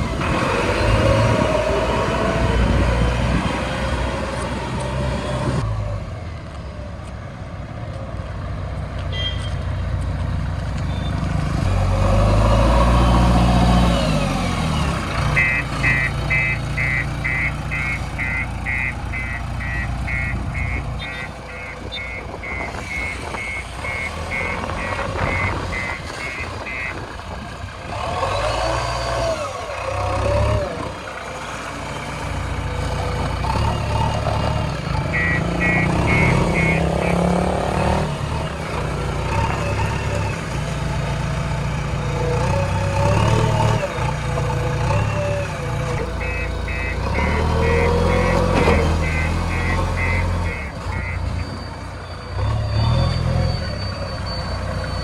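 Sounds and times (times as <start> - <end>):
diesel engine running: 9.6 - 55.0
reversing alarm beeping: 15.4 - 27.1, 35.0 - 40.8, 42.1 - 55.0.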